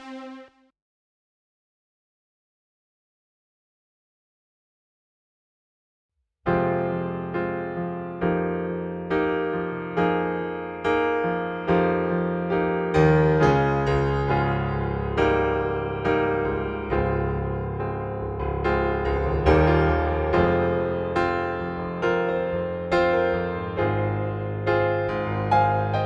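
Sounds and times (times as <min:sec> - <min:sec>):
piano-like chords: 0:00.0 - 0:00.6, 0:06.6 - 0:26.0.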